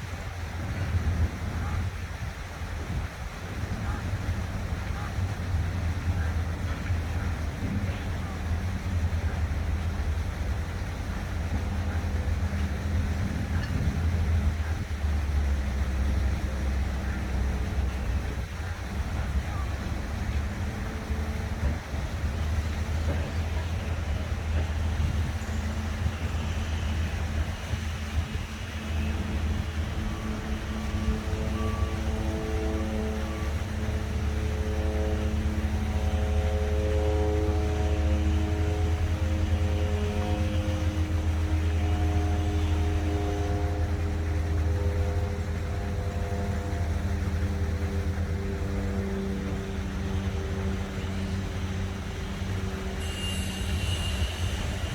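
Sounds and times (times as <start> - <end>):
construction works: 0.0 - 54.9
distant city traffic rumble: 0.0 - 54.9
low mechanical drone: 0.0 - 54.9
water fountains splashing: 0.0 - 54.9
held tones shifting in pitch: 4.8 - 54.9
even hiss: 52.9 - 54.9.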